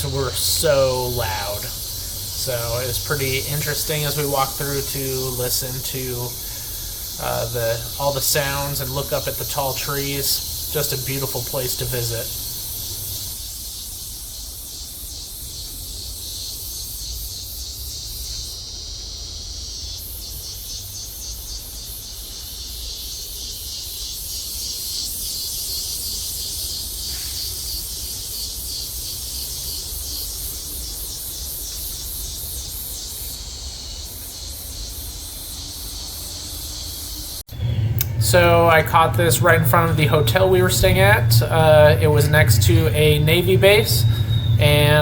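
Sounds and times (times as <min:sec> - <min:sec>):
insects pulsing drone: 0:00.0 - 0:45.0
low rumble: 0:37.5 - 0:45.0.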